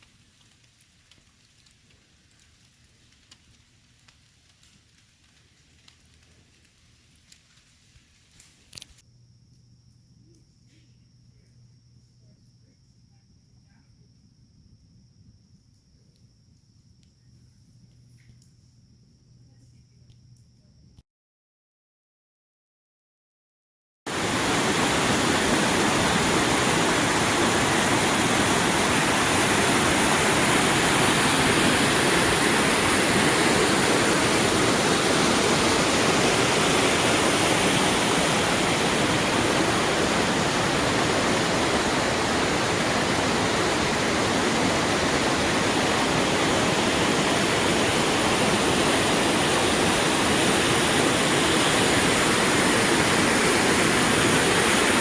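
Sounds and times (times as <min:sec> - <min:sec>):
waterfall rushing: 0:24.1 - 0:55.0.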